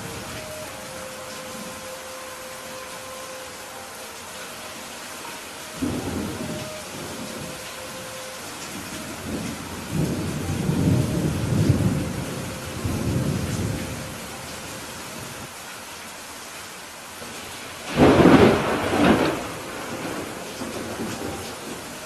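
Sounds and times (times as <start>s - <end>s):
steady rain: 0.0s - 22.0s
thunder rumbling: 5.8s - 15.5s, 17.8s - 22.0s.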